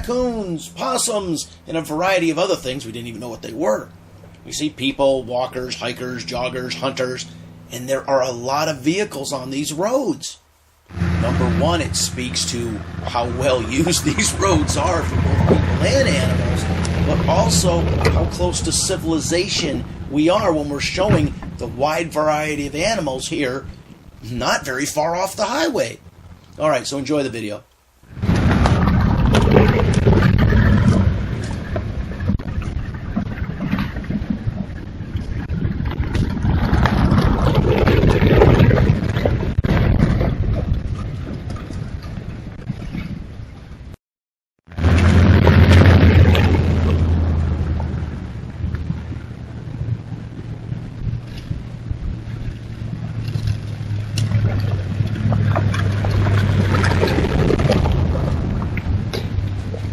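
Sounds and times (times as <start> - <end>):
vehicle engine and tyre noise: 0.0 - 43.9, 44.7 - 59.9.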